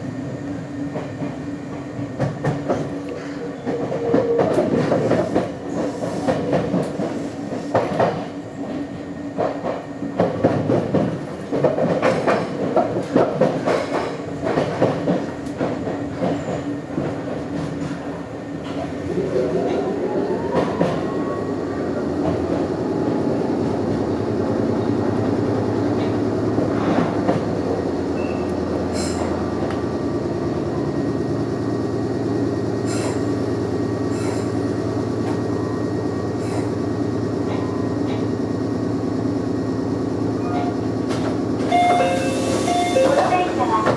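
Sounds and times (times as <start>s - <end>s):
train rumble and motor hum: 0.0s - 43.9s
wheels clacking over rail joints: 9.4s - 18.8s.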